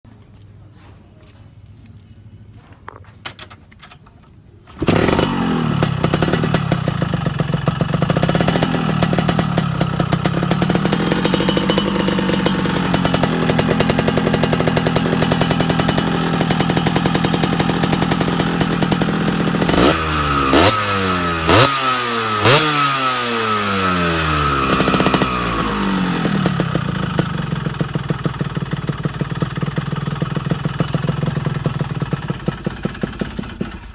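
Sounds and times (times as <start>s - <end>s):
engine revving with sharp cracks: 4.7s - 29.8s
two-stroke motorcycle engine idling: 4.8s - 33.9s.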